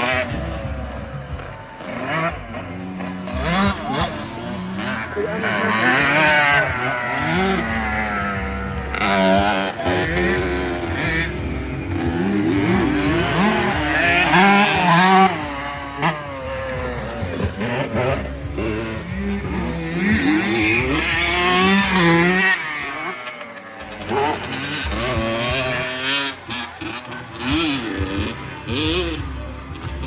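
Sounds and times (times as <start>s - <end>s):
dirt bike engines revving: 0.0s - 30.0s.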